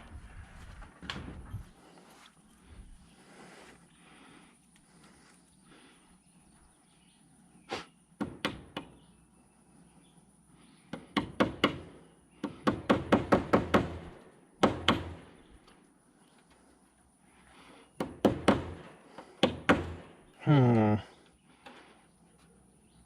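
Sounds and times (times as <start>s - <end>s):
hammer driving nails into wood: 8.2s - 9.0s, 10.9s - 15.3s, 18.0s - 20.1s.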